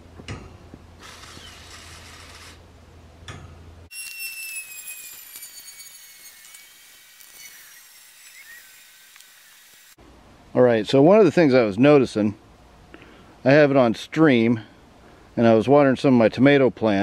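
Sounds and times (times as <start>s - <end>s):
high thin whistle: 3.9s - 8.8s.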